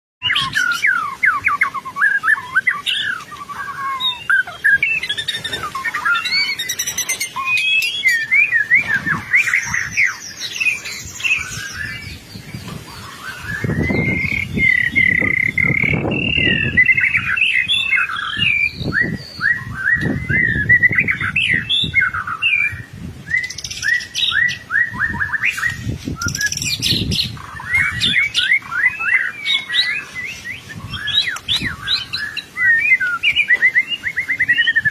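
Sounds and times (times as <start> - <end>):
songbird whistles and trills: 0.2 - 34.9.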